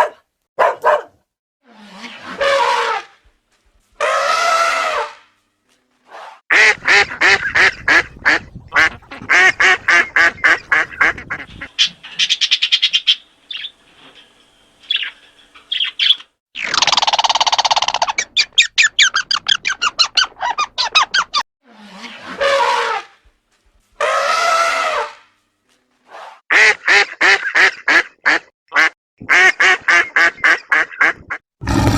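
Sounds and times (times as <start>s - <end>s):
harsh duck squawk: 4.0s - 5.2s, 6.5s - 12.3s, 24.0s - 25.2s, 26.5s - 31.8s
ducks quacking: 6.5s - 13.1s.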